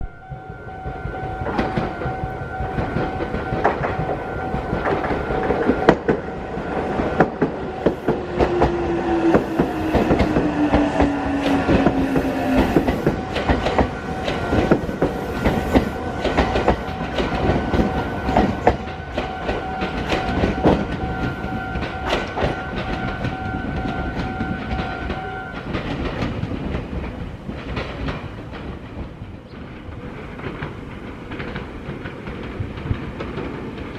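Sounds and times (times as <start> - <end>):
train motor whine: 0.0 - 25.8
train wheels clattering over rails: 0.4 - 33.9.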